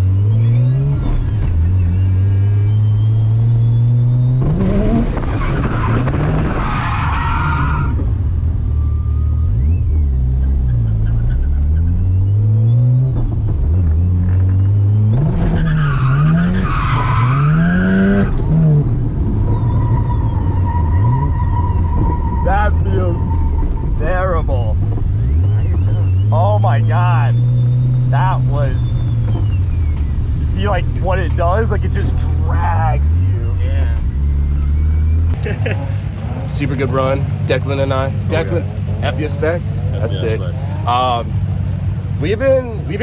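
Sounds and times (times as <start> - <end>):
rotary engine revving: 0.0 - 8.0, 11.3 - 43.0
tyre squeal: 15.2 - 24.0.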